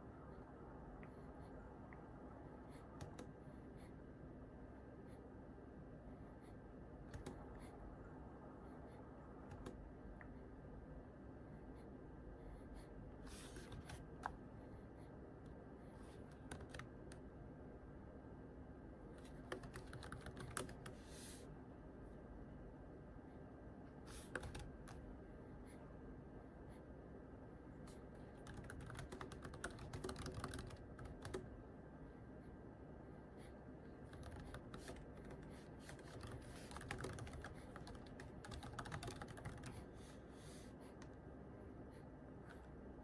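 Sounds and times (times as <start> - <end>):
faint background hum: 0.0 - 43.0
keyboard typing: 3.0 - 3.3, 7.1 - 7.5, 9.4 - 9.8, 16.3 - 17.2, 19.2 - 21.0, 24.2 - 25.0, 28.3 - 31.5, 34.0 - 39.9.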